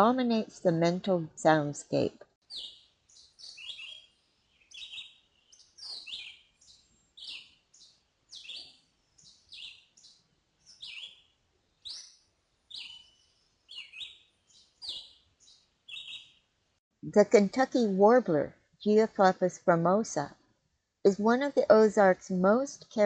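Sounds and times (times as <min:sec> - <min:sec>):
songbird singing short phrases: 0:02.5 - 0:11.2, 0:11.8 - 0:12.1, 0:12.7 - 0:16.4.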